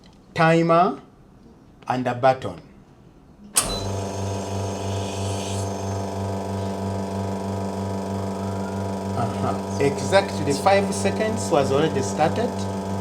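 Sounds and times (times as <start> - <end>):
espresso machine pump hum: 3.6 - 13.0.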